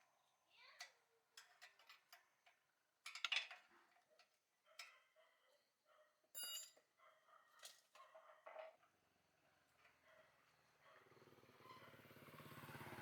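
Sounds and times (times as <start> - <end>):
metal tools clinking: 6.4 - 6.8.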